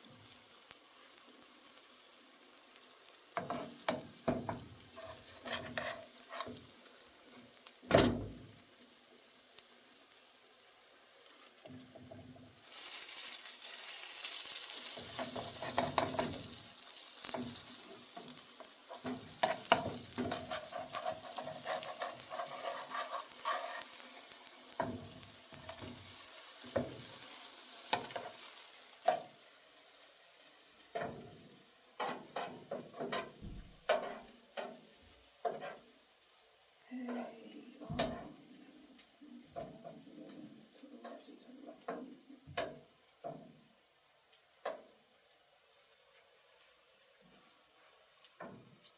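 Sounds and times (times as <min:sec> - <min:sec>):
food sizzling in a pan: 0:00.0 - 0:48.9
utensil stirring and knocking pan: 0:03.4 - 0:07.1, 0:14.7 - 0:29.5, 0:30.9 - 0:31.4, 0:32.0 - 0:35.9, 0:37.9 - 0:38.4.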